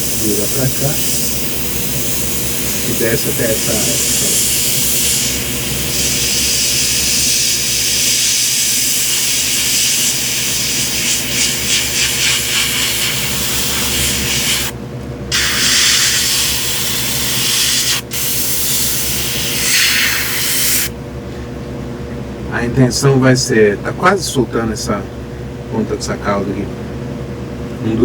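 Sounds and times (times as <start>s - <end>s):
airbrush spraying hiss: 0.0s - 14.7s, 15.3s - 20.9s
steady low hum: 0.0s - 28.0s.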